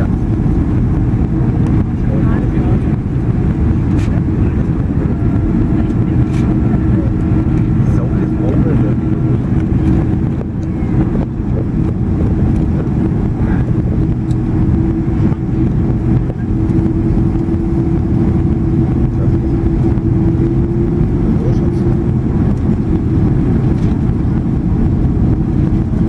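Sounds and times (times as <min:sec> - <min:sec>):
constant cabin hum: 0:00.0 - 0:26.0
jet engine and airflow rumble: 0:00.0 - 0:26.0.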